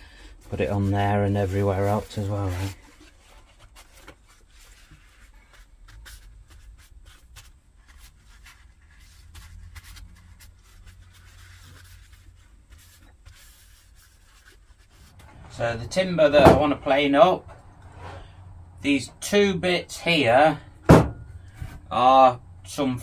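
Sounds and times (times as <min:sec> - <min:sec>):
rubbing: 0:00.4 - 0:17.0.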